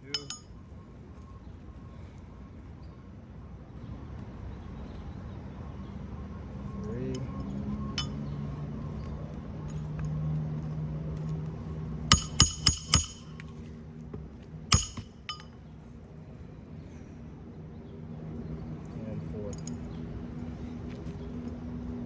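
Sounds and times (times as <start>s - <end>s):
hammer striking metal tool: 0.1s - 0.5s, 8.0s - 8.3s, 12.1s - 13.5s, 14.7s - 15.6s.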